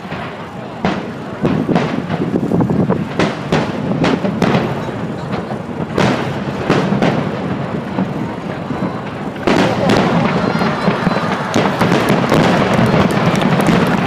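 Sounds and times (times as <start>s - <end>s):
fireworks booming: 0.0s - 14.0s.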